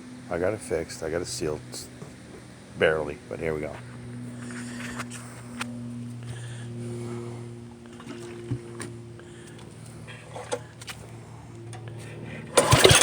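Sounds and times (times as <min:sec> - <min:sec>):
steady low hum: 0:00.0 - 0:13.0
gasoline engine cranking and firing: 0:11.7 - 0:13.0.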